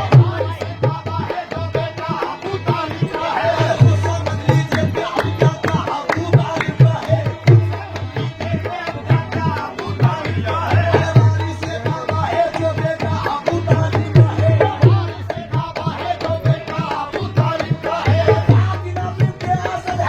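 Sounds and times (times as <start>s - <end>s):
hand drum rhythm: 9.1s - 20.0s.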